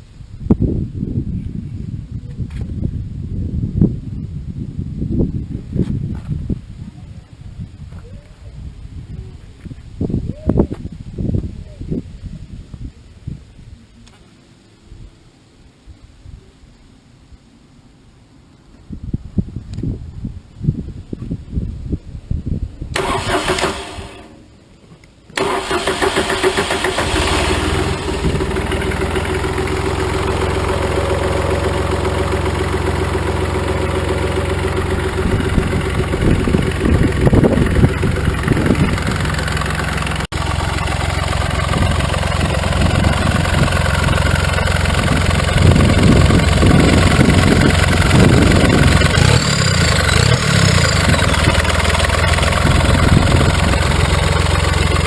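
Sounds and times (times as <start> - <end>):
engine cranking: 23.0 - 24.4, 25.4 - 55.0
diesel engine idling: 25.4 - 55.0.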